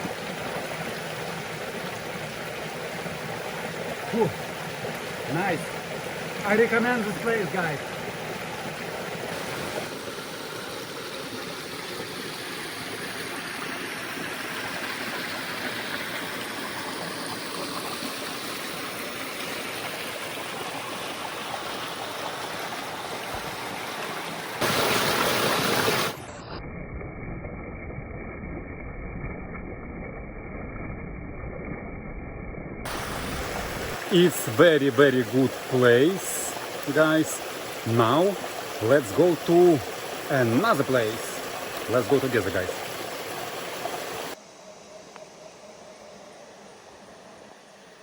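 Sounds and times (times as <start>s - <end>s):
river flowing: 0.0s - 26.5s, 32.9s - 44.7s.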